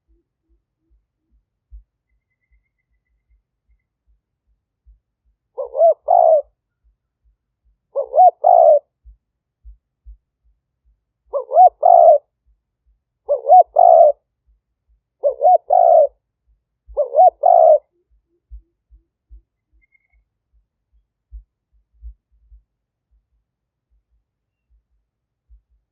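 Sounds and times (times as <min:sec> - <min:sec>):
dove cooing: 0:05.6 - 0:06.6, 0:07.9 - 0:08.9, 0:11.3 - 0:12.3, 0:13.3 - 0:14.2, 0:15.2 - 0:16.2, 0:16.9 - 0:18.7.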